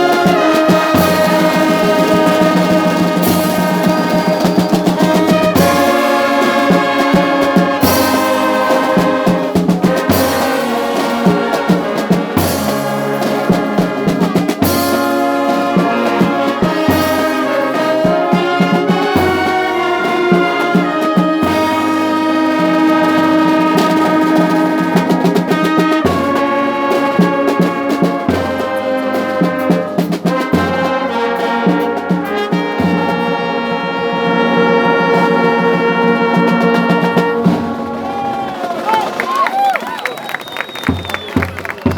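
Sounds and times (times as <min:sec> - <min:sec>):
drum hits: 0:00.0 - 0:33.3
brass band playing: 0:00.0 - 0:41.9.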